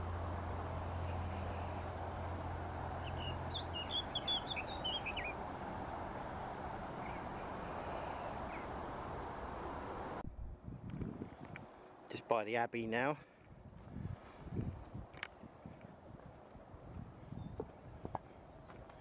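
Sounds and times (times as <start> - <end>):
open-air hiss: 0.0 - 10.2
small bird chirping: 3.0 - 5.4, 7.0 - 8.7.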